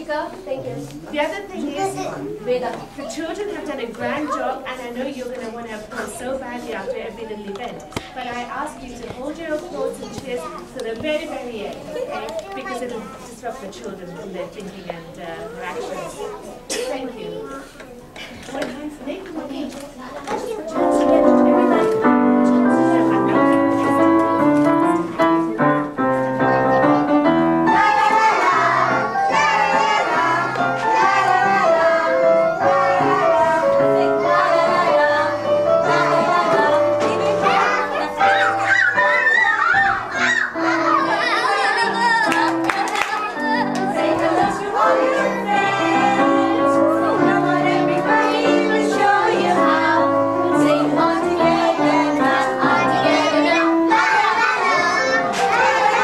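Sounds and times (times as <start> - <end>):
instrumental accompaniment: 20.4 - 56.0
keyboard playing a tune: 20.7 - 56.0
children singing: 26.4 - 56.0.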